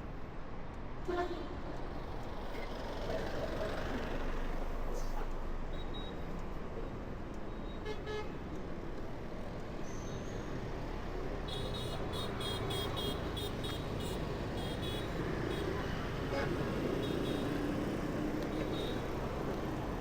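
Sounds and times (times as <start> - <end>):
street traffic noise: 0.0 - 20.0
vehicle horn toot: 11.5 - 17.5.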